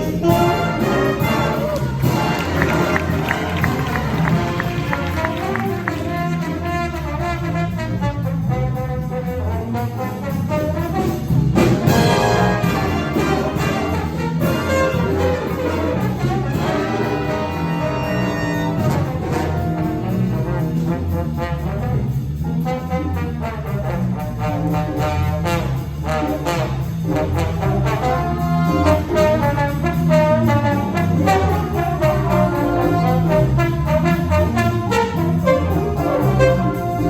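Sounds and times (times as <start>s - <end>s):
jazz ensemble playing: 0.0s - 37.0s
trombones and trumpets: 0.0s - 37.0s.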